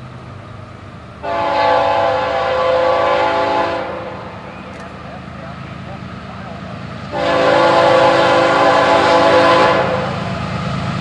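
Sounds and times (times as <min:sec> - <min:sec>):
train rumbling: 0:00.0 - 0:11.0
locomotive air horn blast: 0:01.2 - 0:05.1, 0:07.1 - 0:10.2.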